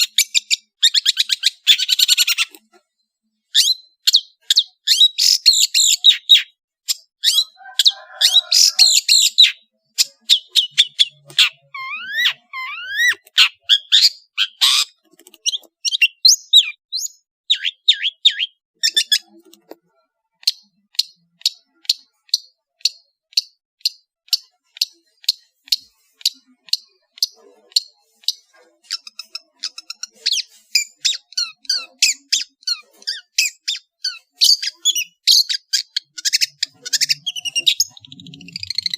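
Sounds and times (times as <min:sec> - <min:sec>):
shrike singing: 0:07.2 - 0:19.4.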